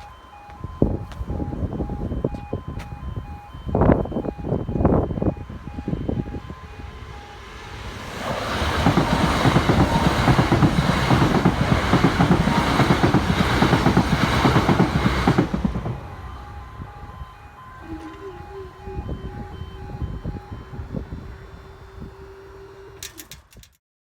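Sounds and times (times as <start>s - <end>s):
crossing alarm repeating tones: 0.0s - 23.0s
train wheels rattling over rails: 6.2s - 17.3s.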